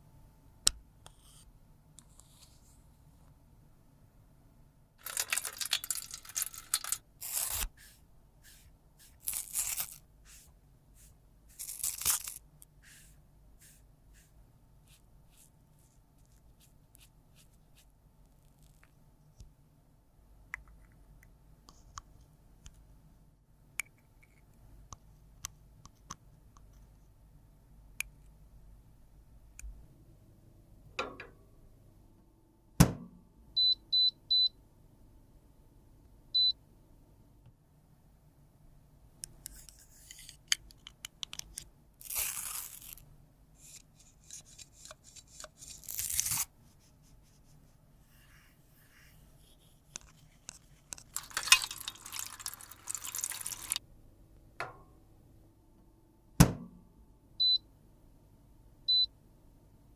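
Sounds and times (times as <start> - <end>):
small handling clicks and taps: 39.2 - 41.7.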